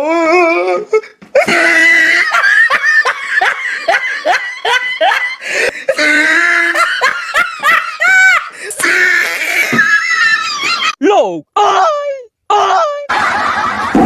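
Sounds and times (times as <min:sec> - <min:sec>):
person laughing hard: 0:01.3 - 0:11.0, 0:13.0 - 0:14.0.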